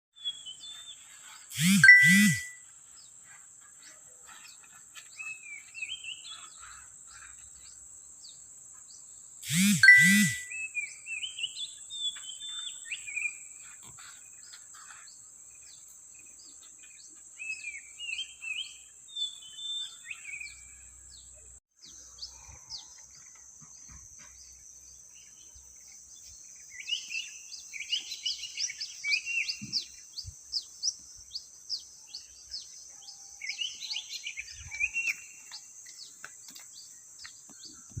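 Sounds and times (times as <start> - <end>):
high-pitched insect drone: 1.6 - 2.6, 9.5 - 10.5.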